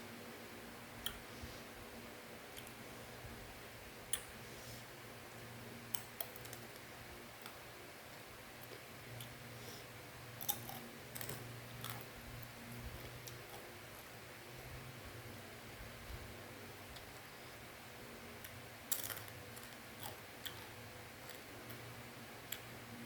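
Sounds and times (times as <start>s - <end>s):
steady low hum: 0.0s - 23.0s
crunchy snack being chewed: 10.4s - 12.1s.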